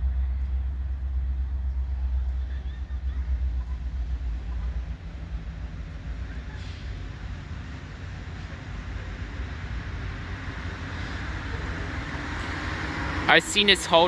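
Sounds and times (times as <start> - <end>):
wind buffeting microphone: 0.0 - 13.7
diesel locomotive rumble: 0.0 - 14.0
rail and wheel hiss: 0.0 - 14.0.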